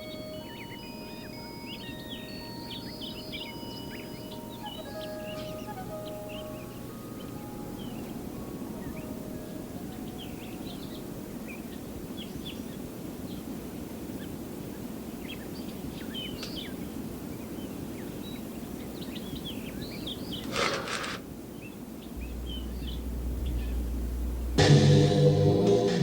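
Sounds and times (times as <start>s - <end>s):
music: 0.0s - 11.3s, 22.2s - 26.0s
small birds chirping: 0.0s - 13.5s, 14.2s - 24.6s
steady background hiss: 0.0s - 26.0s.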